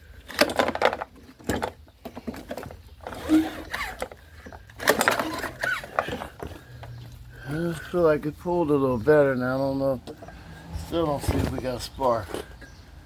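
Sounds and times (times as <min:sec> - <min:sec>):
mower engine cranking: 0:00.0 - 0:08.0, 0:10.0 - 0:12.7
recoil starter pulled: 0:00.2 - 0:07.9.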